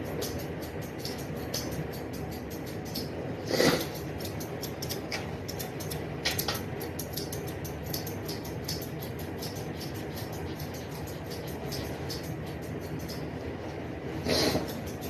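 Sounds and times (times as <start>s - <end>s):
rapid light clicking: 0.0s - 3.1s, 3.8s - 13.3s.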